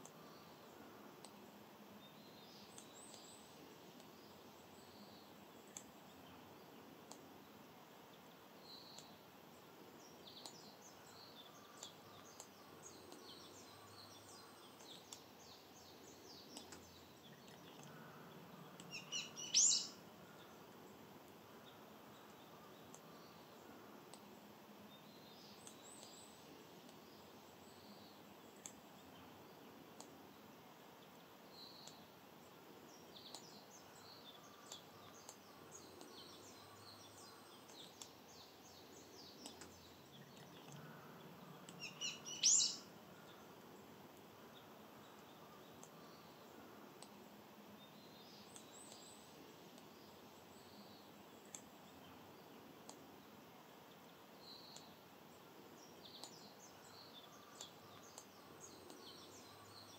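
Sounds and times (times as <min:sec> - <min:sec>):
faint steady hiss: 0:00.0 - 0:59.9
wild birds chirping and singing: 0:00.0 - 0:59.9.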